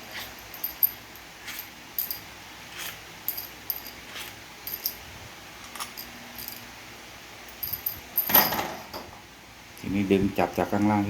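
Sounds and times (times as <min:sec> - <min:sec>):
metal tools clicking and clinking: 0:00.1 - 0:05.0, 0:05.6 - 0:06.7, 0:07.5 - 0:09.1.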